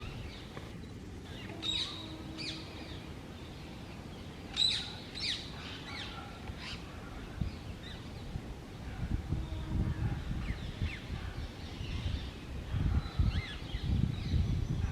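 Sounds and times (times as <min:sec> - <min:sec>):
low background noise: 0:00.0 - 0:14.9
parakeets calling: 0:01.3 - 0:08.1.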